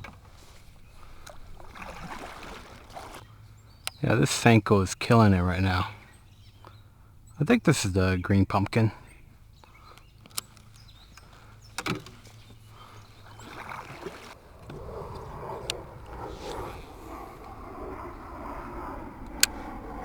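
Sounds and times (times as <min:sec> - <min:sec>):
water swishing: 0:00.0 - 0:03.4, 0:11.4 - 0:20.0
sharp clicks: 0:03.8 - 0:04.1, 0:09.9 - 0:12.1.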